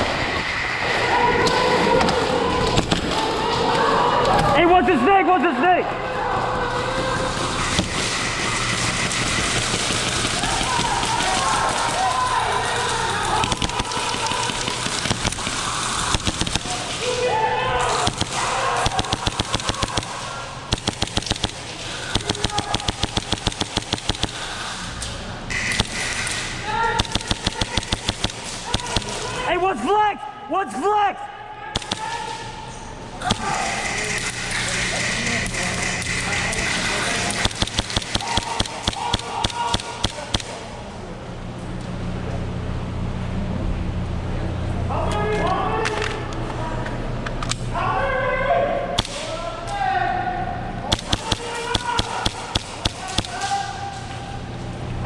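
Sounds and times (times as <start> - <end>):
steady low hum: 5.9 - 30.5, 31.3 - 48.0, 48.7 - 55.0
airsoft guns firing bursts: 7.6 - 17.2, 17.9 - 29.5, 31.8 - 32.6, 33.2 - 40.8, 49.0 - 49.3, 50.8 - 53.9.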